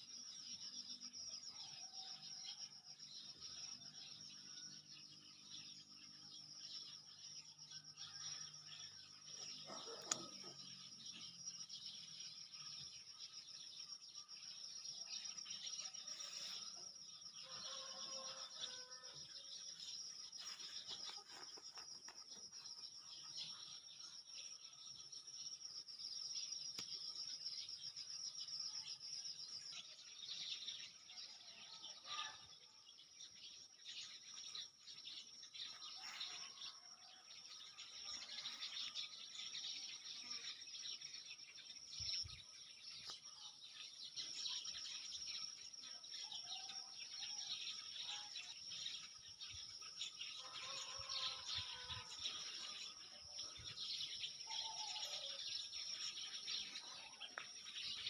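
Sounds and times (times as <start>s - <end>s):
birds chirping and calling: 8.0s - 25.3s, 26.0s - 58.0s.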